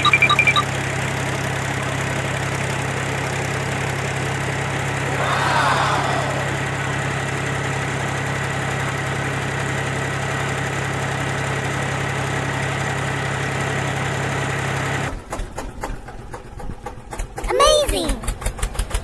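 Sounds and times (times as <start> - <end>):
tractor motor humming and whining: 6.6 - 15.1.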